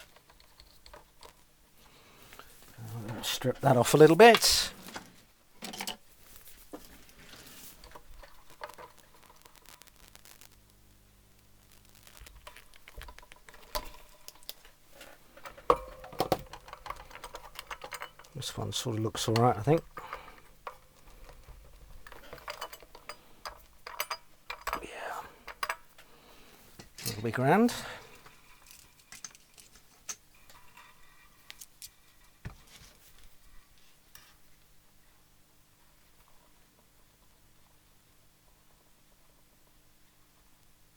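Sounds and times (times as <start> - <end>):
wire and small tools handled: 0.0 - 1.6, 2.3 - 10.5, 11.9 - 26.1, 26.7 - 33.4.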